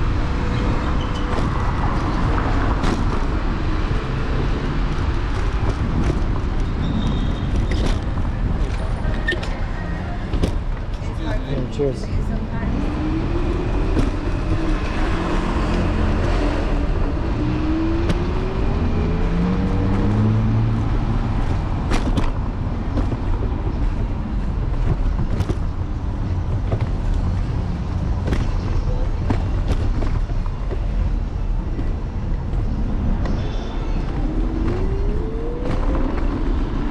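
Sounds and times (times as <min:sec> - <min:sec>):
road and wind rumble: 0:00.0 - 0:36.9
vehicle engine rising in pitch: 0:33.9 - 0:36.9.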